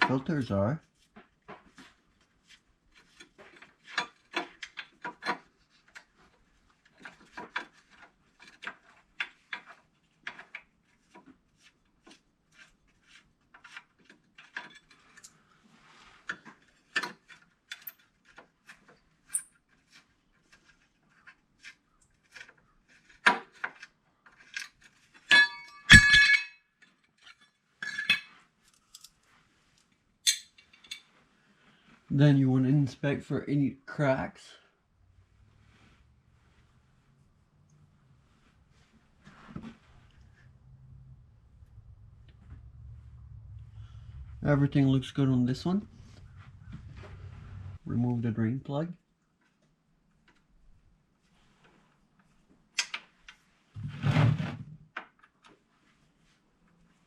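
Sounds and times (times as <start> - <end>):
metallic clanks and rattles: 25.3 - 26.6.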